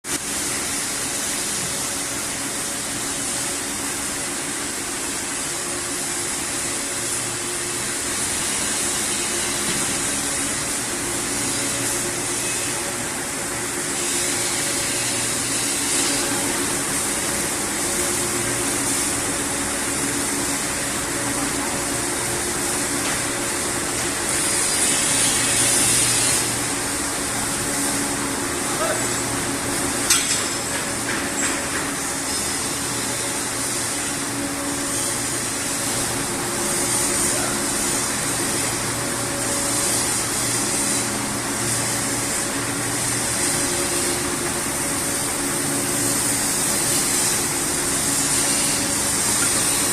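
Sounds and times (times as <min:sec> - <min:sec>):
machinery hiss: 0:00.1 - 0:49.9.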